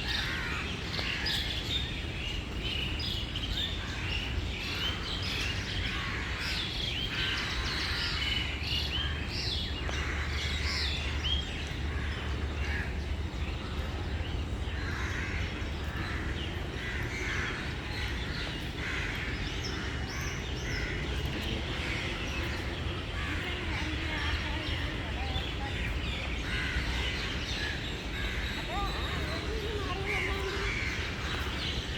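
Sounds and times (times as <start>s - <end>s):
birds calling and chirping: 0.0s - 31.9s.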